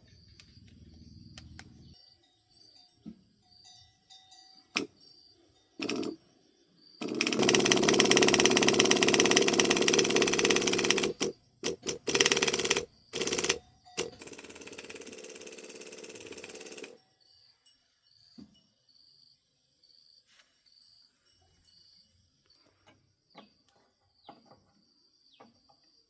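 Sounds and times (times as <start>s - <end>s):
power tool rattling: 5.8s - 6.2s, 7.0s - 17.0s.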